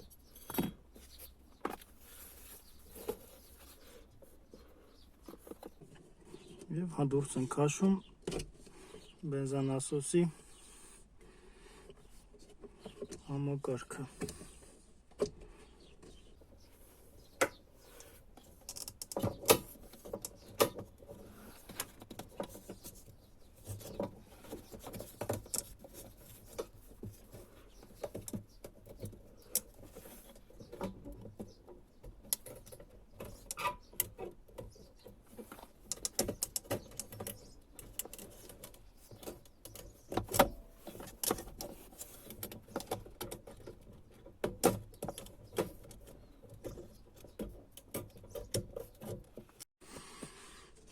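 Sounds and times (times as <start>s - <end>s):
clicks and rattles of handled parts: 16.0s - 49.7s.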